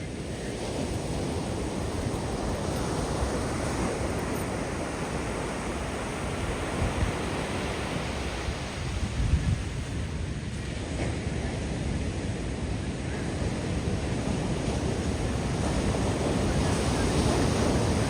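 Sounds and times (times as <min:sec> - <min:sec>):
ocean waves breaking on beach: 0:00.0 - 0:18.0.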